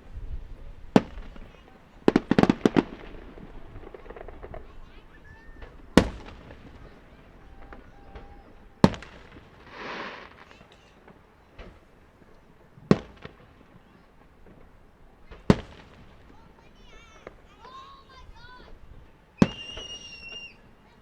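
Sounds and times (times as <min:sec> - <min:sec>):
firework shells bursting: 0:00.9 - 0:16.4
firework hissing burst: 0:08.8 - 0:10.7.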